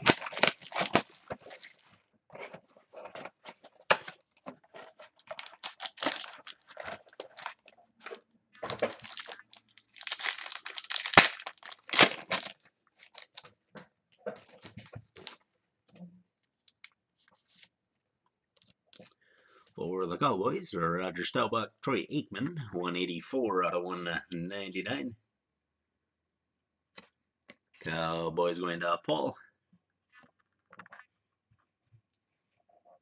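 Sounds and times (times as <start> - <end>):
card packaging crinkling: 0.0 - 2.0, 3.0 - 13.5.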